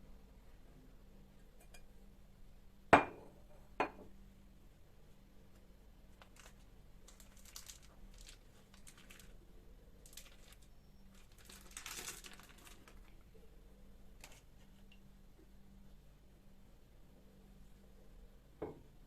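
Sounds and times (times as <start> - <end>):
faint rustling and crinkling: 5.1 - 16.0.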